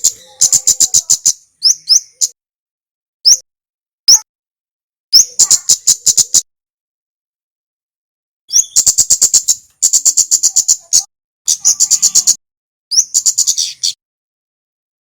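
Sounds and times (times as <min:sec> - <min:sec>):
rapid high-pitched chip calls: 0:00.0 - 0:02.4, 0:05.2 - 0:06.5, 0:08.5 - 0:14.0.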